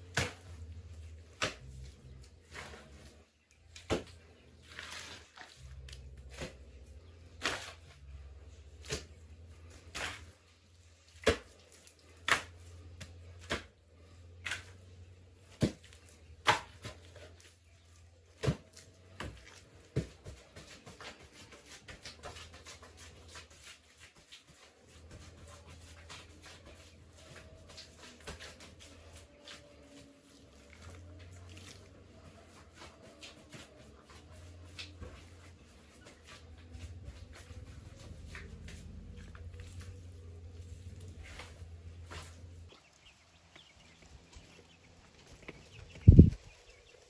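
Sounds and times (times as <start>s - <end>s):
low steady hum: 24.5s - 46.7s.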